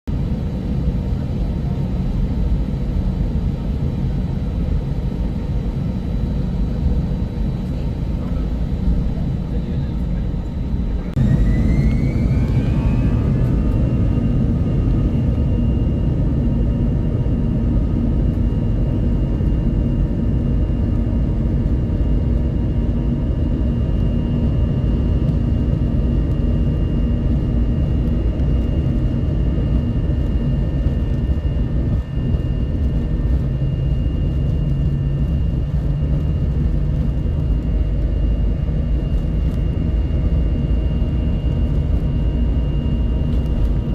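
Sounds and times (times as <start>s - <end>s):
jet cabin rumble: 0.1s - 43.9s
jet engine whine: 0.1s - 43.9s.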